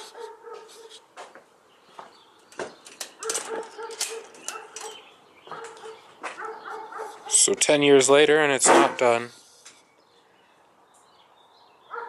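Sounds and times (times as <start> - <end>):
sharp clicks and knocks: 2.5 - 5.0.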